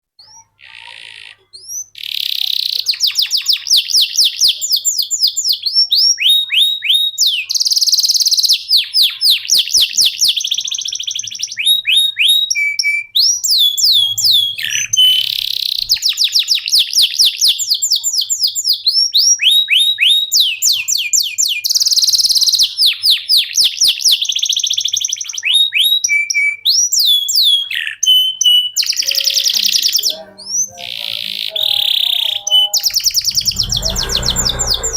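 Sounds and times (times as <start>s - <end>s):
canary singing trills: 0.2s - 34.9s.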